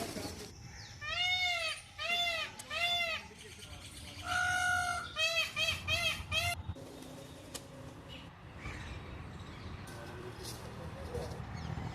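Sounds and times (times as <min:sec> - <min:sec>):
peacock calling: 0:00.0 - 0:06.6.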